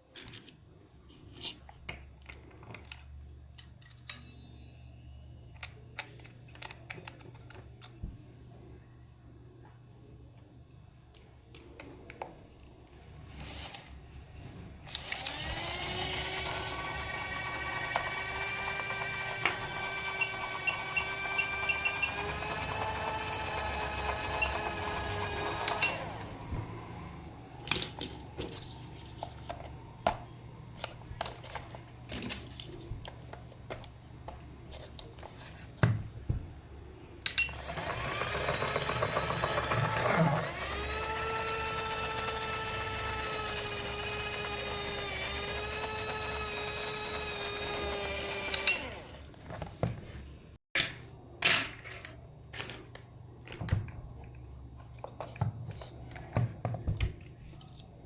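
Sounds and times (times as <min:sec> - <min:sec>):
small electric motor whining: 0:13.4 - 0:14.0, 0:14.9 - 0:26.5, 0:37.5 - 0:49.3.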